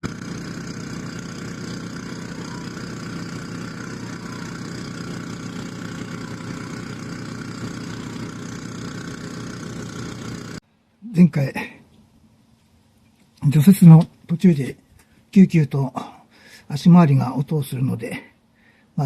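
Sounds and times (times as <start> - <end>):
snowblower engine running: 0.0 - 10.6.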